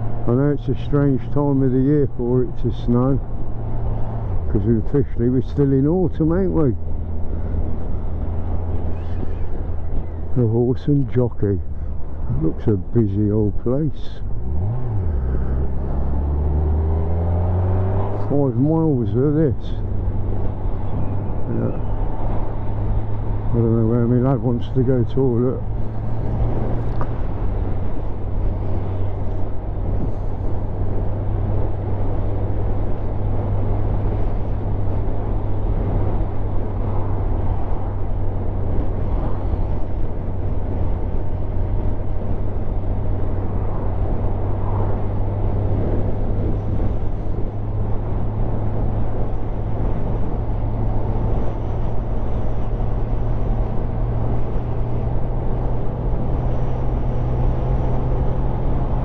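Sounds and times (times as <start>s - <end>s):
motorcycle engine cruising: 0.0s - 59.0s
wind noise on microphone: 19.8s - 23.8s, 25.6s - 59.0s.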